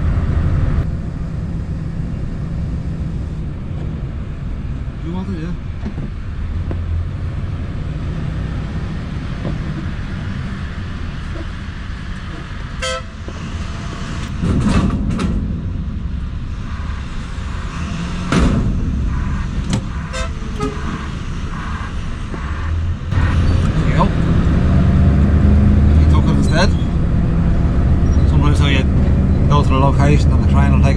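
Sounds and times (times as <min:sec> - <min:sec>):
heavy lorry engine idling: 0:00.0 - 0:25.2
short horn beep: 0:12.8 - 0:13.2, 0:19.1 - 0:23.4
port machinery noise bursts: 0:16.4 - 0:23.6.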